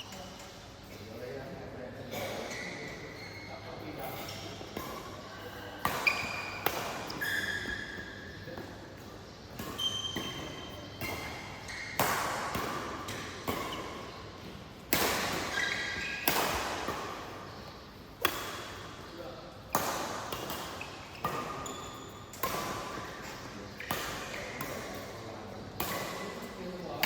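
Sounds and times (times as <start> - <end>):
court shoes squeaking: 0.0 - 1.2, 2.1 - 27.0
racket hitting shuttlecock: 5.8 - 7.8, 9.5 - 17.6, 18.2 - 19.1, 19.7 - 25.2, 25.8 - 27.0.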